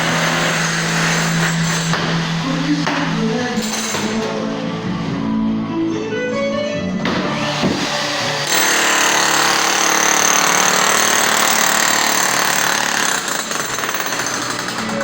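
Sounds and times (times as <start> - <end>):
power tool whining: 6.9 - 15.0.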